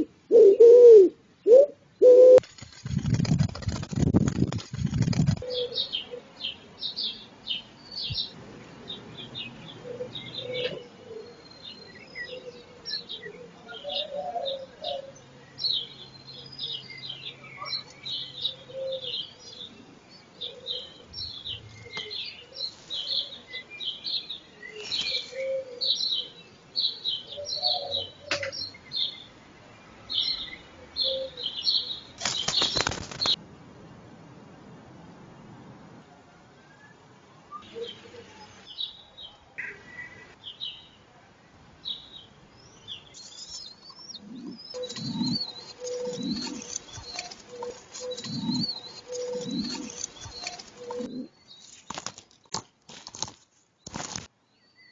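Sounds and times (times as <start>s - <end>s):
small birds chirping: 2.4s - 33.4s, 41.8s - 52.8s.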